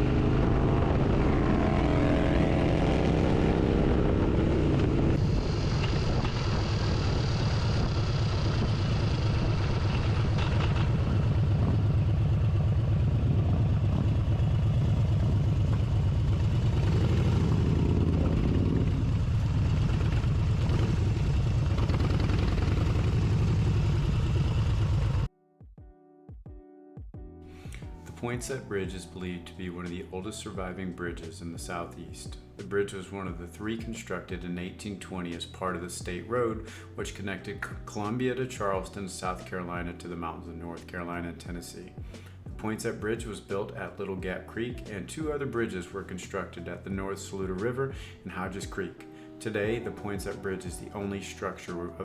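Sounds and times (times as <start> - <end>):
motorcycle engine running: 0.0 - 25.3
steady rushing noise: 0.0 - 25.3.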